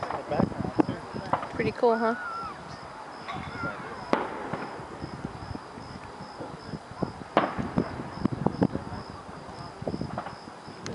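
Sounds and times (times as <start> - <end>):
distant fireworks bangs: 0.0 - 10.6
cricket chirping: 0.0 - 10.9.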